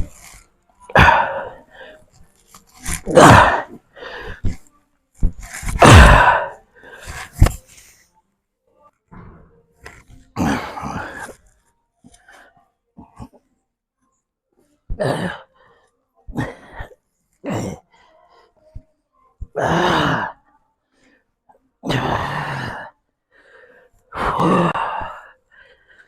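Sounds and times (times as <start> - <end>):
heavy forced breathing: 0.0 - 7.7, 21.9 - 26.0.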